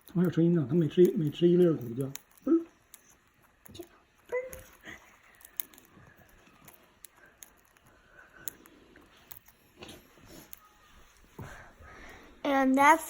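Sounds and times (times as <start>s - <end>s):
parrots cracking seeds: 0.0s - 10.7s.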